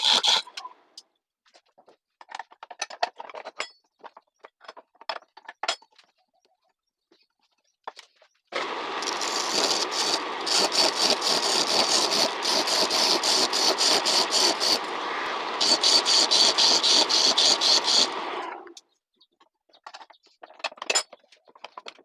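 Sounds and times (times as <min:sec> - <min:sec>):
chisel scraping spinning log: 0:00.0 - 0:00.5, 0:08.6 - 0:18.6
wood lathe running: 0:08.6 - 0:18.7.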